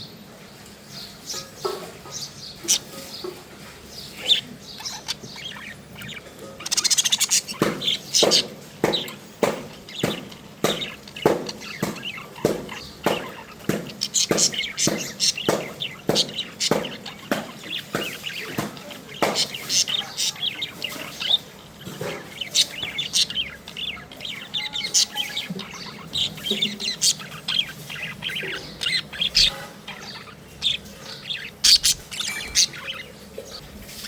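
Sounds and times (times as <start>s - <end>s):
parrot calling: 4.0s - 34.0s.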